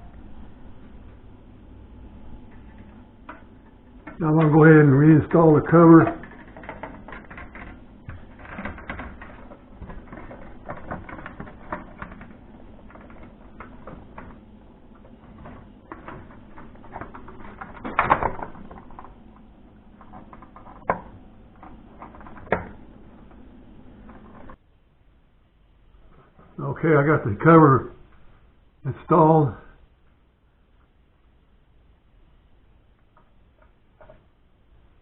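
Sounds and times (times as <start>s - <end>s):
light fixture cover rattling and scraping: 5.4s - 19.2s, 19.9s - 23.4s, 24.0s - 24.6s, 33.5s - 34.3s.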